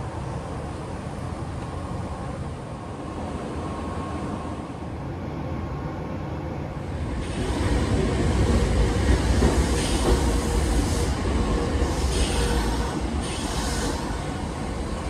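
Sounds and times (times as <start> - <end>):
train rumbling on rails: 0.0 - 15.0
short bursts of hiss: 9.6 - 15.0.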